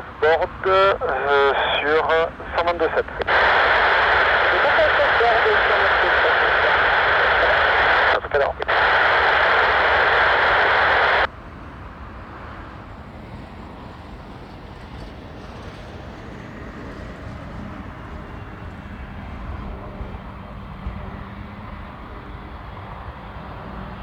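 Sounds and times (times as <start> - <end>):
jet airliner rumble: 0.0 - 11.3, 12.3 - 24.0
radio hiss: 0.0 - 11.3.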